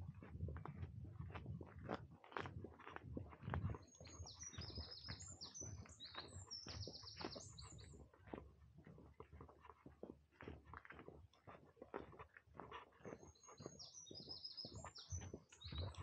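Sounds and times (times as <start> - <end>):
footsteps on a path: 0.0 - 16.0
songbird twittering: 4.0 - 7.9.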